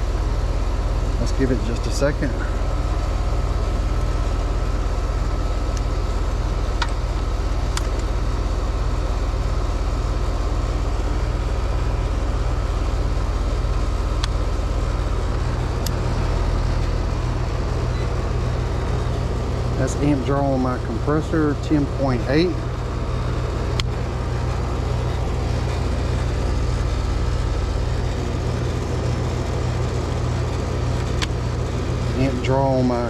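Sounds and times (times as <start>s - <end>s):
heat pump humming: 0.0s - 33.0s.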